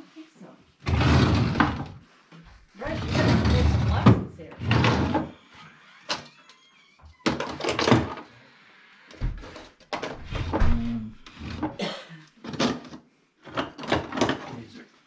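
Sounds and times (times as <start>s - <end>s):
objects knocking and clattering: 9.2s - 11.8s, 12.4s - 14.6s.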